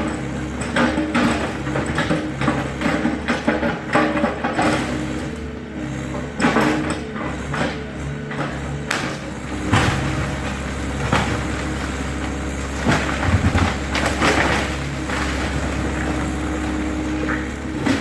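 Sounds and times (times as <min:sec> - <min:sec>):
excavator diesel engine running: 0:00.0 - 0:18.0
structure cracking and crashing: 0:09.0 - 0:18.0.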